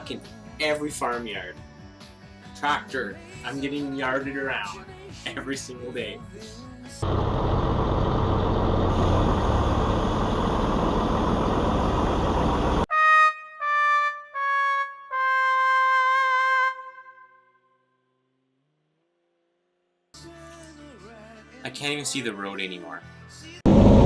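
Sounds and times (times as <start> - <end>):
loud truck noise: 7.0 - 12.9, 23.7 - 24.0.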